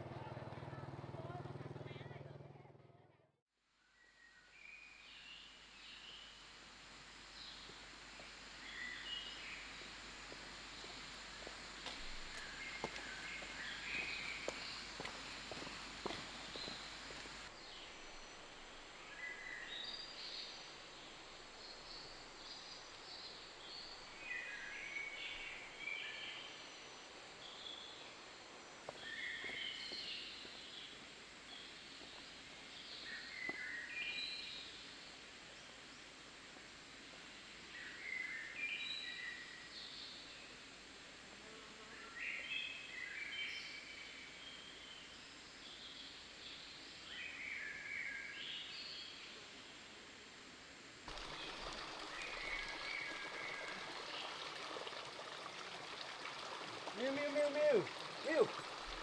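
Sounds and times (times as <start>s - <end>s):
faint background noise: 3.8s - 59.0s
running water rushing: 6.5s - 26.0s, 51.1s - 59.0s
birds chirping: 8.6s - 17.7s, 51.1s - 59.0s.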